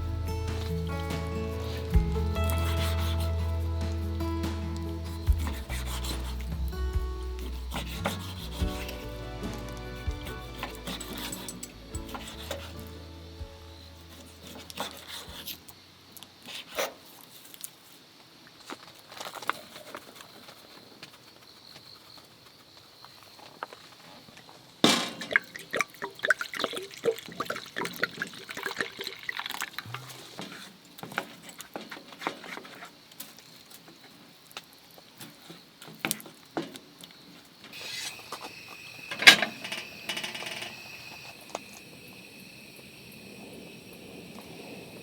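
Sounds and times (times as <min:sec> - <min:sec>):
utensils and dishes clattering: 0:07.4 - 0:12.8
liquid pouring and sloshing: 0:25.2 - 0:29.9.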